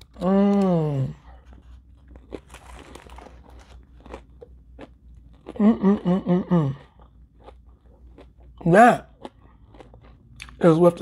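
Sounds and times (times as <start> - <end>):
crunching of fried fish chewed: 0.0 - 10.8.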